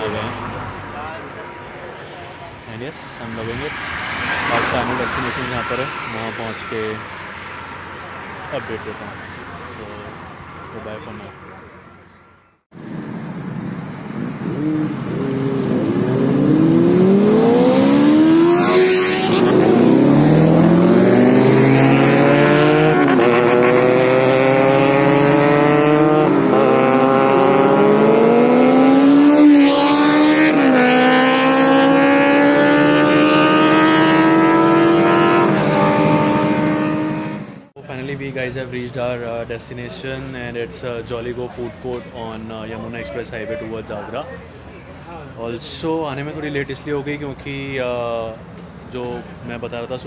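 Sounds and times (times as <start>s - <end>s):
motorcycle engine accelerating: 12.8s - 37.7s.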